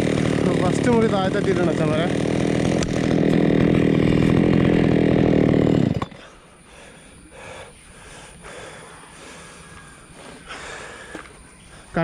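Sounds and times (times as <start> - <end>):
chainsaw running: 0.0 - 7.6.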